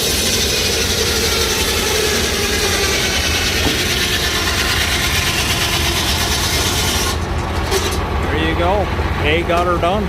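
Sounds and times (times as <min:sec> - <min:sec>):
circular saw cutting log: 0:00.0 - 0:08.0
tractor engine running: 0:00.0 - 0:10.0.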